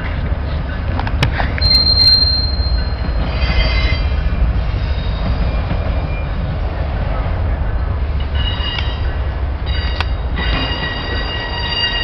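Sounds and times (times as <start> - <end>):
train wheels squealing: 1.6 - 6.6, 8.3 - 12.0.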